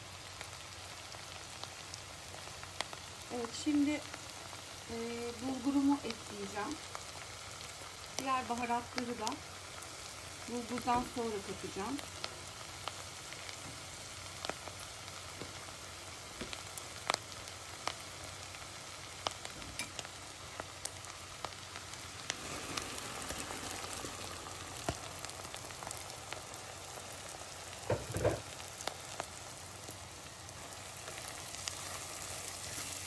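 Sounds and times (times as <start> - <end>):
tomatoes sizzling in oil: 0.0 - 33.0
dry grain pouring into pan: 22.1 - 27.2.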